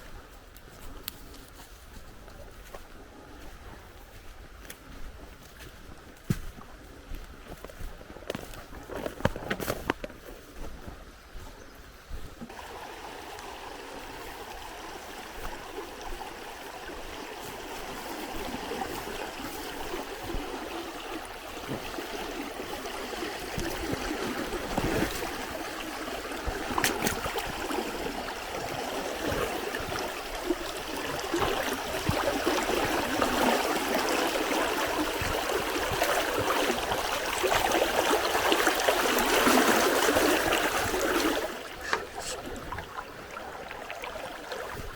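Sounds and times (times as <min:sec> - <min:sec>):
river water rushing: 0:12.5 - 0:44.9.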